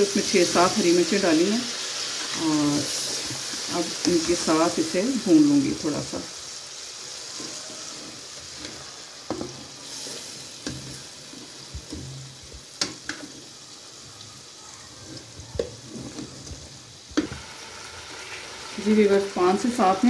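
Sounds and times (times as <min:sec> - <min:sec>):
meat sizzling in hot oil: 0:00.0 - 0:20.0
spatula knocking and scraping pan: 0:07.4 - 0:13.4.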